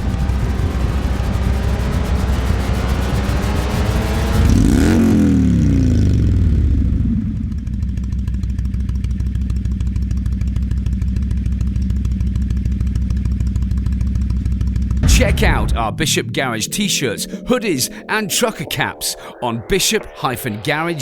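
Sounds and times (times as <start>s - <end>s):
motorcycle engine revving and idling: 0.0s - 15.1s.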